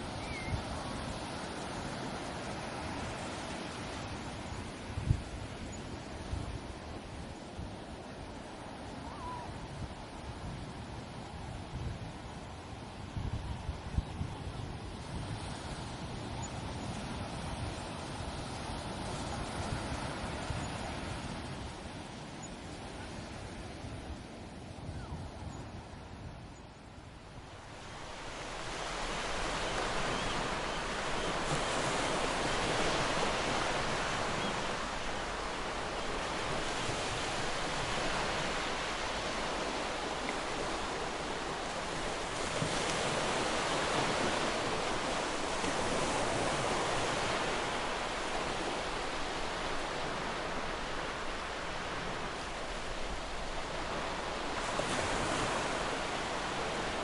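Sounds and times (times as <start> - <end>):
ocean surf breaking on beach: 0.0 - 24.9, 27.0 - 57.0.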